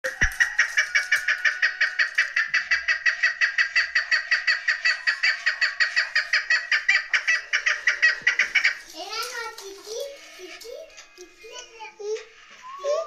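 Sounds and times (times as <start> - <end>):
partridge calling: 0.1 - 8.9.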